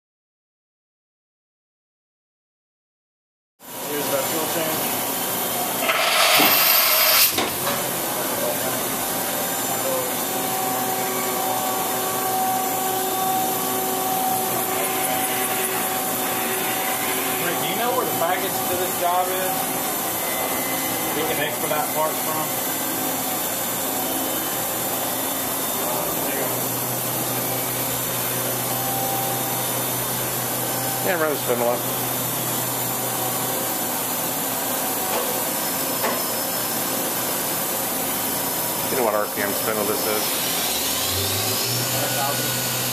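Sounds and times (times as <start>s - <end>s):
machinery whirring: 38.9s - 42.9s.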